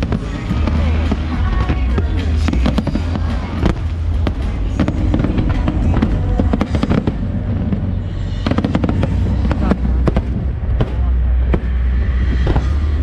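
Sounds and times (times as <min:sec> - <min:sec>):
deep rumble: 0:00.0 - 0:13.0
faint crowd voices: 0:00.0 - 0:13.0
faint music: 0:00.0 - 0:13.0
fireworks crackling bangs: 0:00.0 - 0:13.0.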